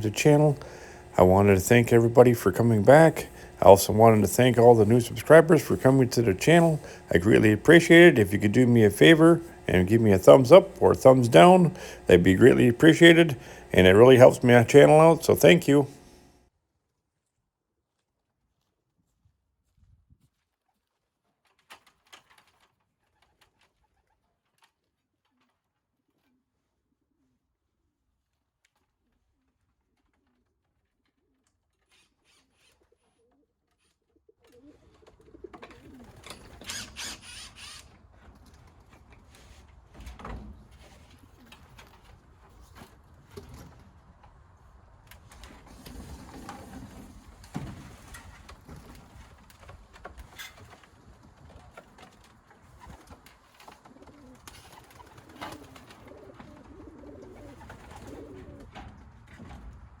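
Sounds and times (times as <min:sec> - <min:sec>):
pigeons cooing: 0:34.5 - 0:37.6, 0:53.8 - 0:58.8.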